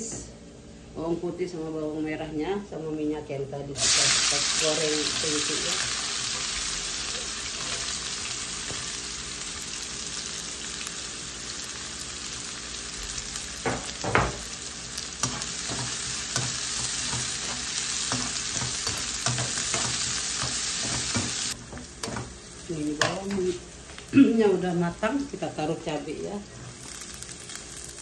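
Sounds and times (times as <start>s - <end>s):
shallots sizzling in hot oil: 3.8s - 28.0s
metal spatula scraping wok: 15.2s - 22.4s.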